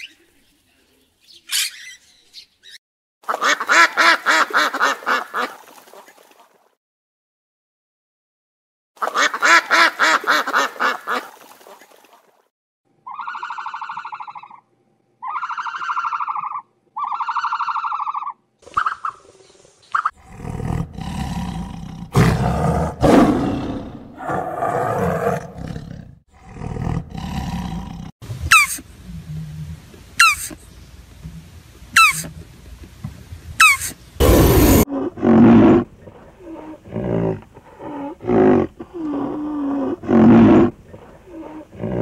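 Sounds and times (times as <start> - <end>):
rapid pulsed animal call: 13.0 - 19.2, 28.5 - 30.6
drawn-out animal calls: 15.2 - 19.0, 28.5 - 30.6, 32.0 - 32.4
tiger roaring: 20.2 - 28.1, 34.2 - 42.0.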